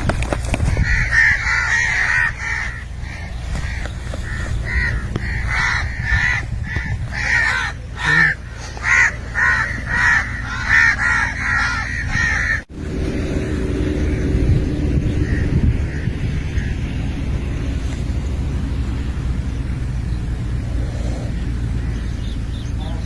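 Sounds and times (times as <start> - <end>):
steady low rumble: 0.0 - 23.0
crows cawing: 0.5 - 12.7, 15.1 - 16.9.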